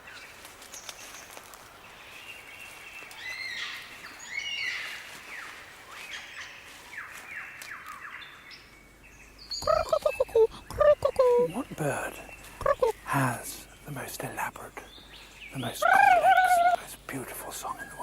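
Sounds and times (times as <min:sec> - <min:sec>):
birds chirping and whistling: 0:02.7 - 0:13.2.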